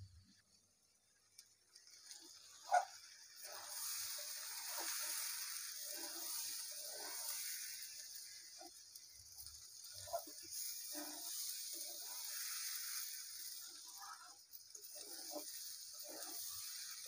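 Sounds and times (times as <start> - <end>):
rice frying in oil: 0.0 - 17.0
metal spatula scraping pan: 2.7 - 8.7, 9.4 - 17.0.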